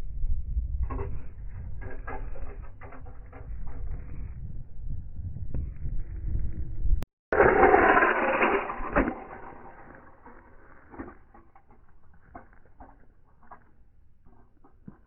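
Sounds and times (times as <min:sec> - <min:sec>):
loud crash: 0:07.4 - 0:11.1.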